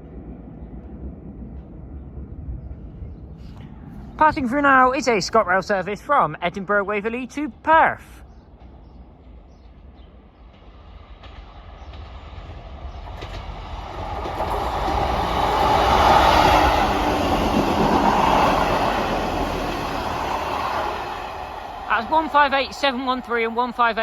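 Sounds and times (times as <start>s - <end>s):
diesel train passing: 10.2s - 24.0s.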